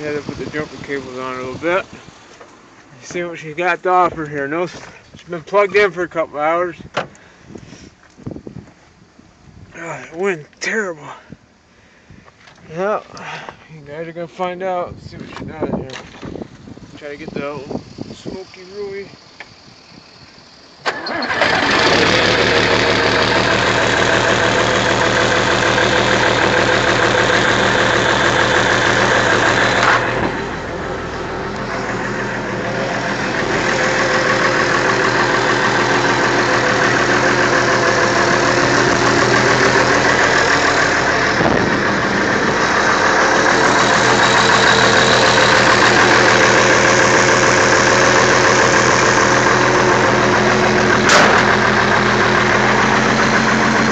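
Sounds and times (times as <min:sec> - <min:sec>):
engine starting and running: 0:20.4 - 0:53.9.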